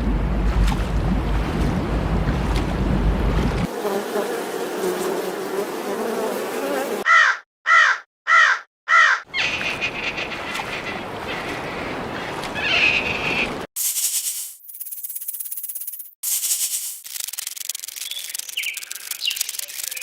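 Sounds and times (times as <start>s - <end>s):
bird calling: 7.0s - 13.6s.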